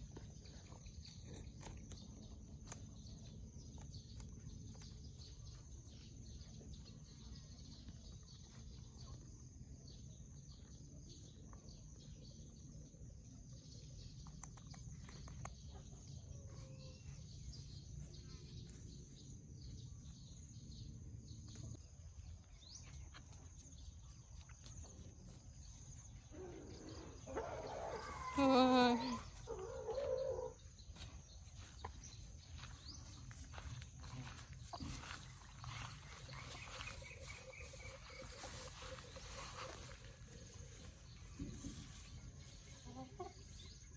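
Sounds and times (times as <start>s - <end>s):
faint bird chirps: 25.7s - 43.9s.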